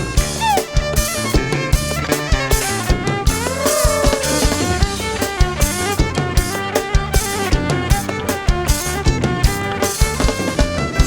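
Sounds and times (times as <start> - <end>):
drum kit fast beat: 0.0 - 11.0
melody instruments: 3.4 - 5.4.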